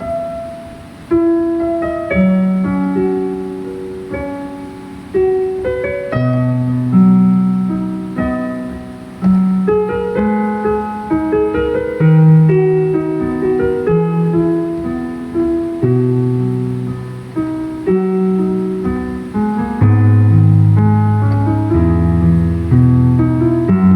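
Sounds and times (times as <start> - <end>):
slow piano music: 0.0 - 23.9.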